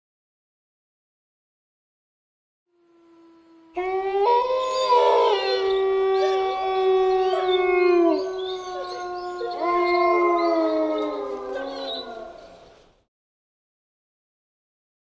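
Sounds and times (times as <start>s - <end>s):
wolves howling: 3.0s - 13.0s.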